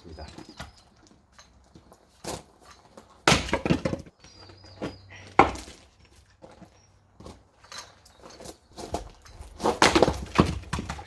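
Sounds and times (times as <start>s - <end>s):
axe splitting firewood: 2.2s - 6.6s, 8.9s - 11.0s
wood cracking apart: 3.2s - 4.1s.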